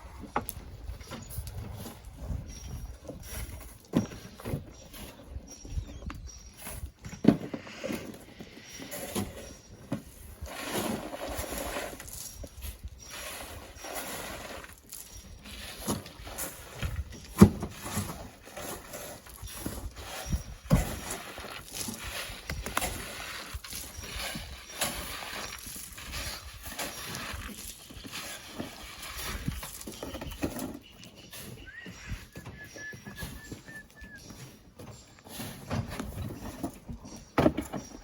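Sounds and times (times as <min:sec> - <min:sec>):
sand and stones scraping: 0:06.7 - 0:34.3.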